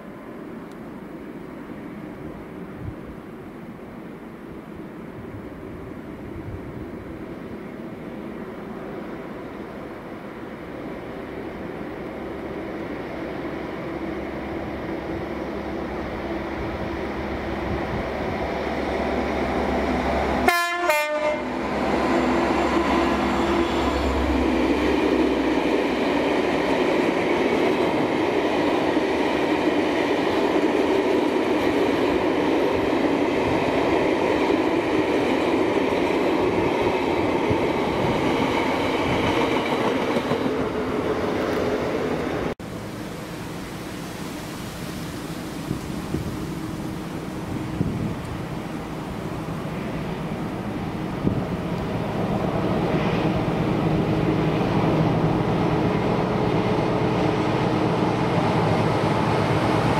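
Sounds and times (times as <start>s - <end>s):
diesel locomotive engine: 0.0s - 59.9s
train horn blast: 20.4s - 24.5s
freight wagons rumbling past: 21.5s - 29.5s.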